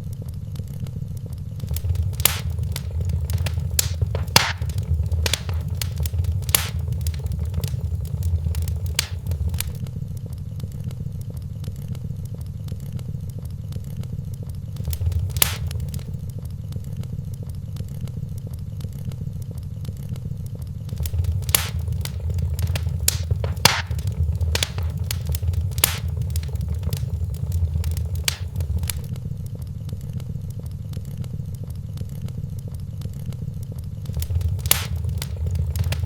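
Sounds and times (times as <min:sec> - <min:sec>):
wood fire crackling and popping: 0:01.6 - 0:09.8, 0:14.8 - 0:16.2, 0:20.9 - 0:29.2, 0:34.0 - 0:36.0.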